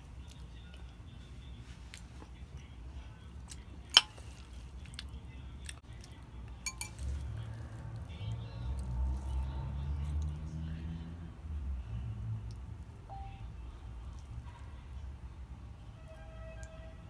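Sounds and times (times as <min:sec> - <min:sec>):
chewing and wet mouth sounds: 0:00.0 - 0:10.7, 0:12.3 - 0:13.0, 0:13.9 - 0:14.7
sharp clink: 0:06.7 - 0:07.1.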